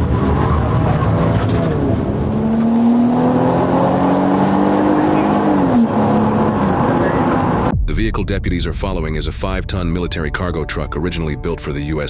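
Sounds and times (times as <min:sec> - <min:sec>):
vehicle engine pulling hard: 0:00.0 - 0:07.7.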